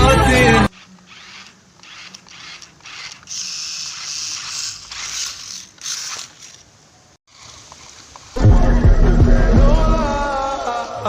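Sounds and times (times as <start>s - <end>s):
toy truck motor whirring: 0.5s - 6.7s, 7.3s - 8.4s.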